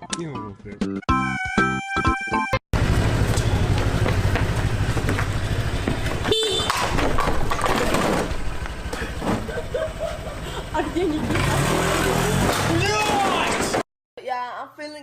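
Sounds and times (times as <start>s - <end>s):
street traffic rumble: 2.7s - 13.4s.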